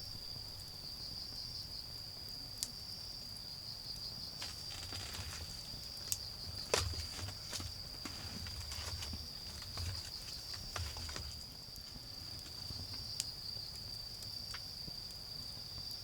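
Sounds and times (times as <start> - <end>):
crickets chirring: 0.0 - 16.0
wood fire popping: 4.3 - 15.0.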